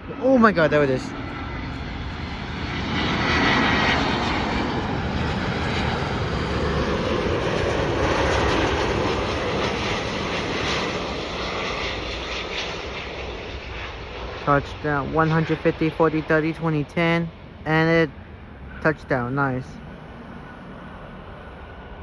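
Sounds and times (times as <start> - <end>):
jet airliner rumble and hiss: 0.0 - 22.0.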